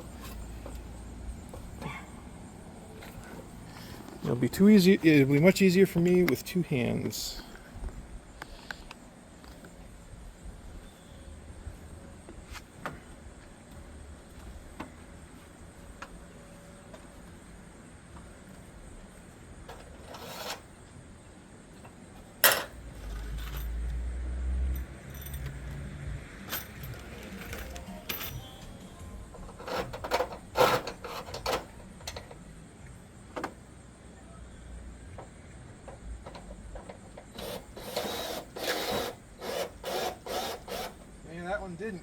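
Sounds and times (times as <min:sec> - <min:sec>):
scraping and rubbing on metal: 0:19.7 - 0:20.7, 0:29.4 - 0:31.7.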